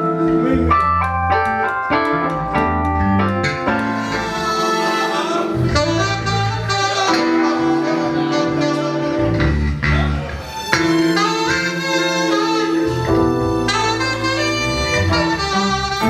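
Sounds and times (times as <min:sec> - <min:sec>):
bass line: 0:00.0 - 0:11.7, 0:12.7 - 0:16.0
live jazz-funk band: 0:00.0 - 0:16.0
saxophone long notes: 0:03.4 - 0:16.0.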